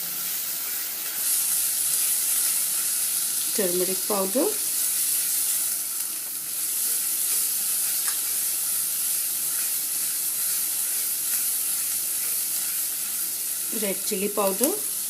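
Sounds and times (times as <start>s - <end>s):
paste sizzling in hot oil: 0.0s - 15.0s.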